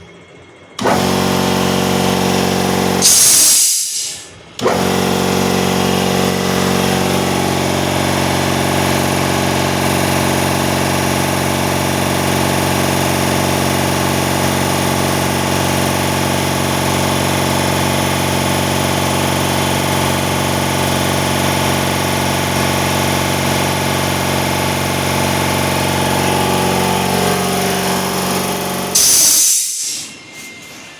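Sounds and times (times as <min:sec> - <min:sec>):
air compressor running: 0:00.8 - 0:30.4
burst of hissing air: 0:03.0 - 0:04.4, 0:28.9 - 0:30.2.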